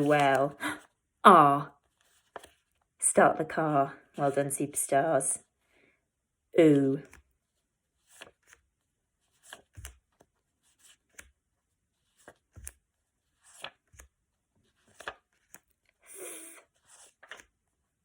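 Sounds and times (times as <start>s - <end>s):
paper cards tapping and rustling: 0.0s - 0.6s, 1.8s - 2.9s, 8.0s - 11.4s, 12.0s - 17.6s.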